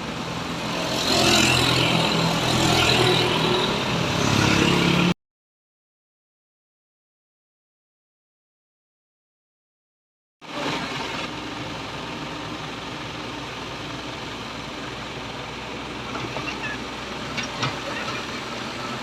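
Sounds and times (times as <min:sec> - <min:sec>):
excavator diesel engine running: 0:10.4 - 0:19.0.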